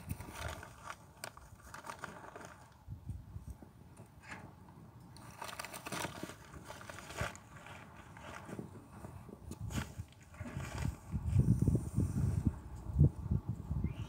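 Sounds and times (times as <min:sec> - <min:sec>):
wind on microphone: 0:08.5 - 0:14.0.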